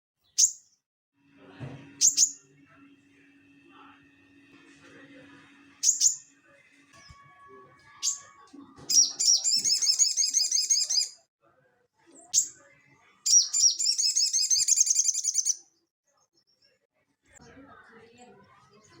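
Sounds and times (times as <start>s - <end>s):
songbird call and trill: 8.9s - 11.1s, 13.3s - 15.6s.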